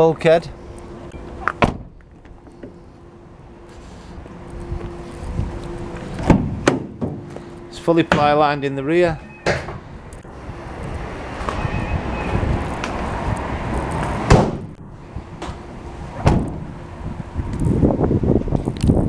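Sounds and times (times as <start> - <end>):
van doors thudding shut: 1.6 - 2.0, 6.2 - 7.3, 14.2 - 14.8, 16.2 - 16.8.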